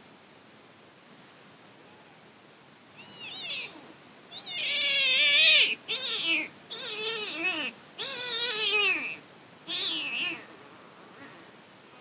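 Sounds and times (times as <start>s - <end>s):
kitten meowing: 3.0s - 10.5s.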